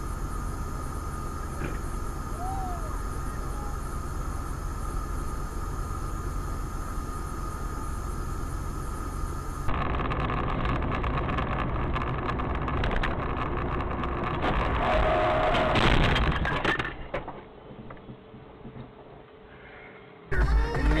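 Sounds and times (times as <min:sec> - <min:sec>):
car road and engine noise: 0:00.0 - 0:19.3, 0:20.2 - 0:21.0
clatter of clicks: 0:10.1 - 0:14.7.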